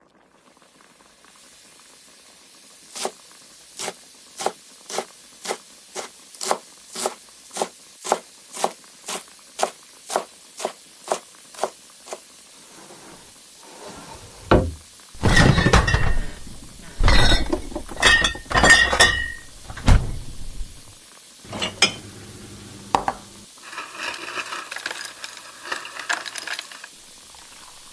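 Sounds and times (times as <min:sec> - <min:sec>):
pots and pans clattering: 0:13.9 - 0:20.9, 0:21.5 - 0:22.2, 0:22.9 - 0:27.9
dishes clinking: 0:14.0 - 0:20.9, 0:21.5 - 0:22.2, 0:22.9 - 0:26.9.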